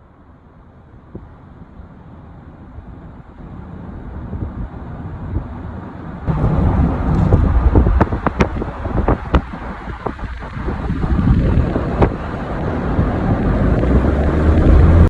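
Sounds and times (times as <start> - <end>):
wind buffeting microphone: 2.5 - 15.0.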